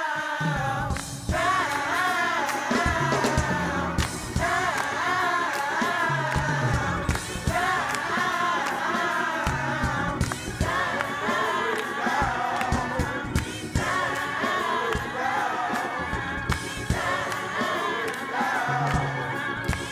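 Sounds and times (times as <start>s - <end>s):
gospel choir singing: 0.0s - 19.9s
band accompaniment: 0.1s - 19.9s
steady drum beat: 0.4s - 19.9s
bass line: 2.9s - 4.8s, 6.1s - 7.9s, 9.5s - 11.0s, 15.9s - 17.6s, 18.7s - 19.9s.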